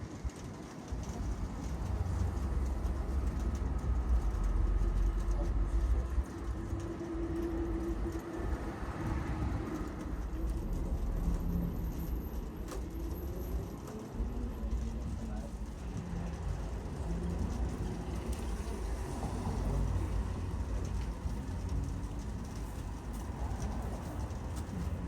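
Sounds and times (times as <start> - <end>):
tram wheels rumbling on rails: 0.0 - 25.0.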